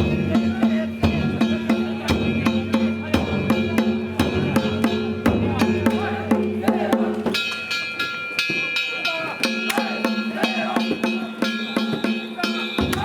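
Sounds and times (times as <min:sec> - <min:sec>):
taiko drums beating: 0:00.0 - 0:13.0
metal gongs ringing: 0:07.3 - 0:13.0.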